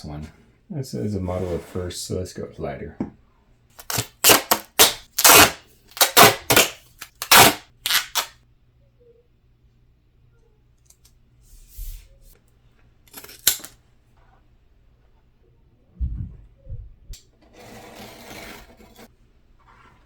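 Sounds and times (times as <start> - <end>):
duct tape ripping off roll: 3.8 - 8.3.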